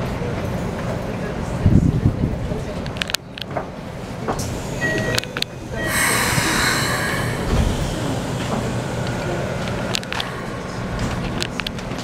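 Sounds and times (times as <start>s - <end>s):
loud sustained hiss: 5.8s - 12.0s.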